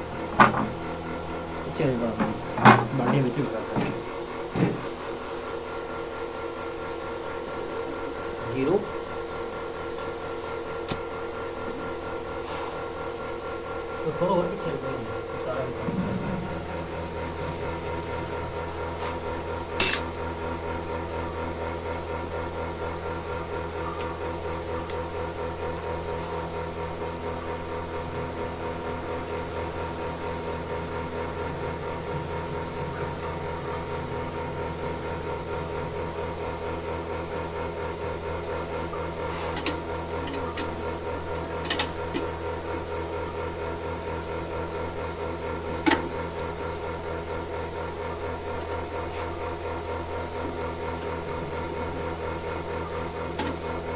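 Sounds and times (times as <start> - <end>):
milking machine motor pulsing: 0.0 - 53.9.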